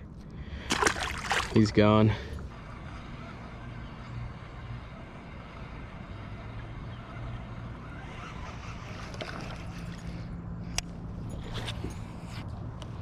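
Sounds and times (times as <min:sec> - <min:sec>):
wind: 0:00.0 - 0:13.0
water noise around kayak: 0:00.6 - 0:01.7.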